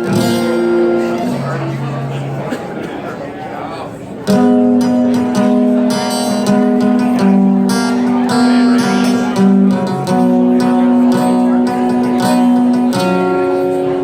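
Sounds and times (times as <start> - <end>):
live band music: 0.0 - 2.5
strummed guitar chords: 0.0 - 3.1, 4.2 - 14.0.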